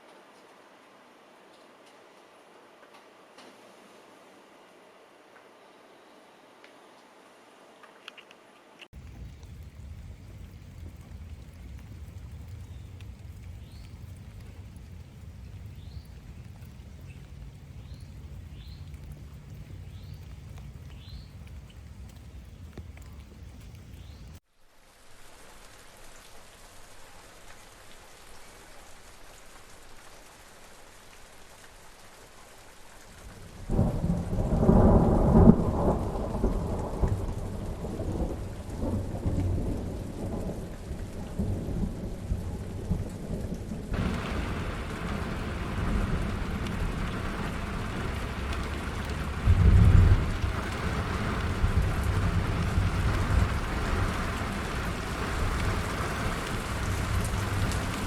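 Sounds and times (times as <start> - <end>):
rain: 0.0 - 58.0
thunder rumbling: 9.0 - 24.4, 33.2 - 58.0.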